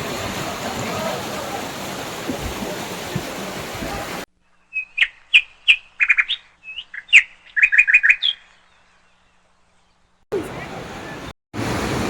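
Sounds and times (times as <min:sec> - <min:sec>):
rushing water: 0:00.0 - 0:04.3, 0:10.3 - 0:12.0
songbird chirping and trilling: 0:04.4 - 0:10.2.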